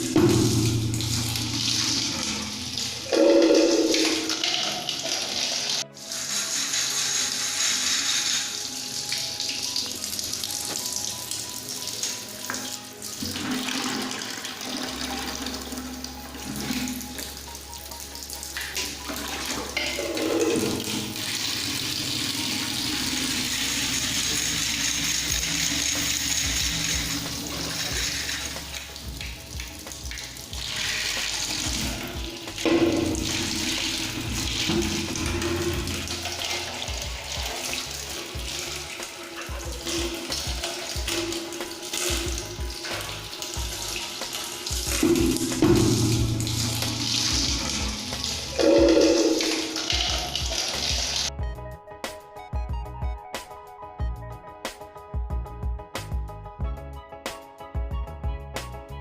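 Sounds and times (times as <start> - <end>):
water spraying and splashing: 0.0 - 51.3.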